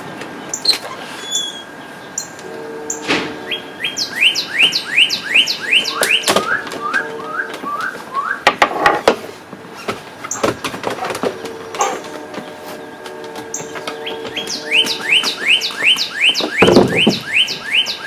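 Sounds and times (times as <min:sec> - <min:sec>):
songbird whistling: 0:00.5 - 0:08.5, 0:11.6 - 0:18.0
sharp knocks: 0:09.9 - 0:17.4.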